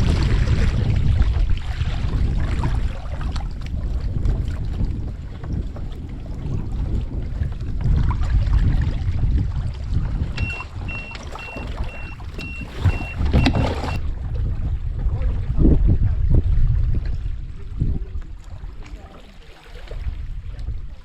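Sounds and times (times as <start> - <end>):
wind buffeting microphone: 0.0 - 19.2, 19.8 - 21.0
water slapping around kayak: 0.0 - 21.0
high electronic beeps: 10.4 - 14.0.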